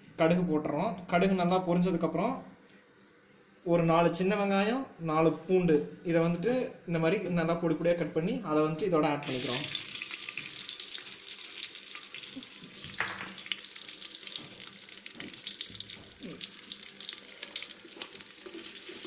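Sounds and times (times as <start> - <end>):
food sizzling in hot oil: 9.2 - 19.0.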